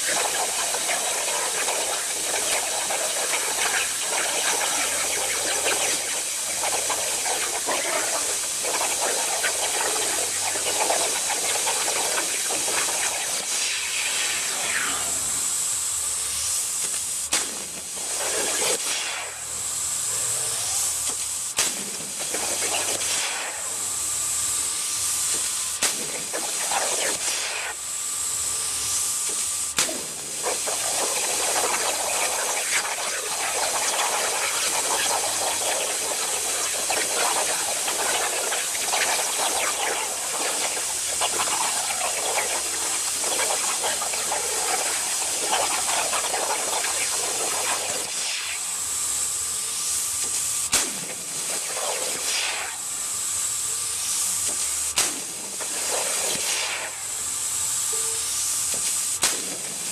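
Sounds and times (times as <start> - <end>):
plasma torch hissing: 0.0 - 59.9.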